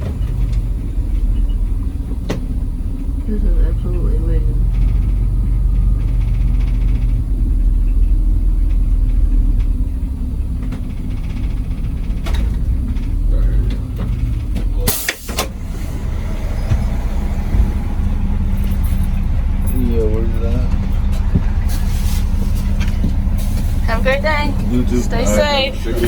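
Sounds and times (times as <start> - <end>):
coach engine droning: 0.0 - 26.0
air brake hiss: 14.9 - 16.1, 21.7 - 22.6.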